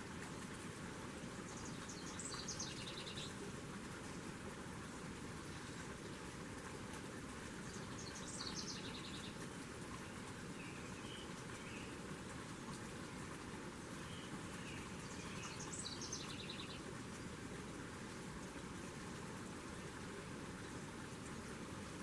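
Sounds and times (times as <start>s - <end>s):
songbird singing trills: 7.7s - 9.4s, 14.0s - 16.8s.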